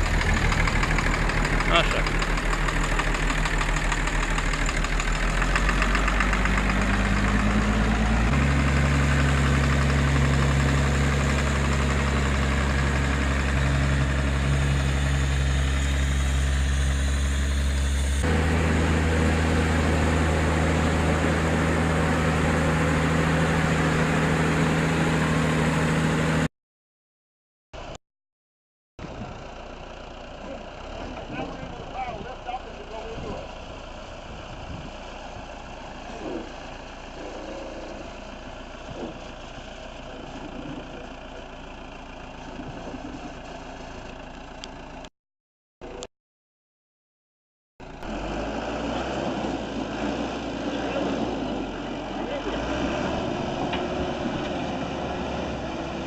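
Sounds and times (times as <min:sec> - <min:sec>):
tractor engine running: 0:00.0 - 0:26.5, 0:29.0 - 0:45.1, 0:47.8 - 0:56.0.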